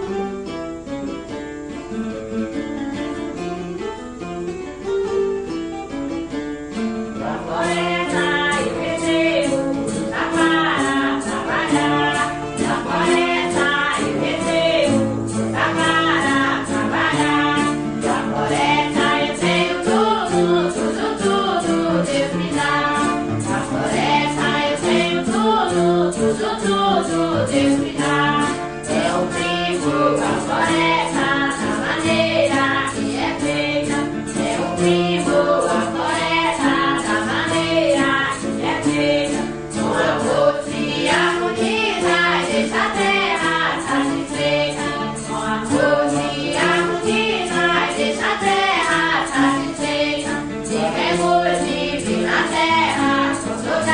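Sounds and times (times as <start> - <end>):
group singing a hymn in unison: 7.0 - 53.9
shaken percussion beat: 7.2 - 53.9.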